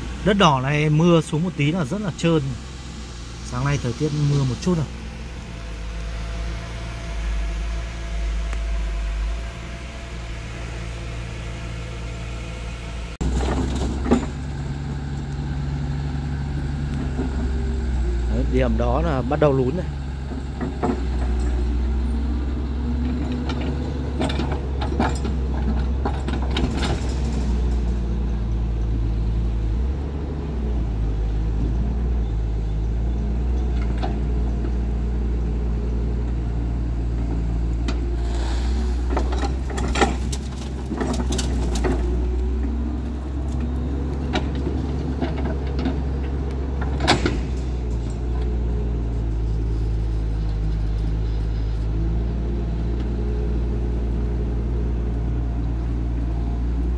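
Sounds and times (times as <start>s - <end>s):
truck engine running: 0.0s - 56.9s
truck body knocks and rattles: 23.3s - 27.9s, 39.0s - 42.8s, 44.1s - 48.4s.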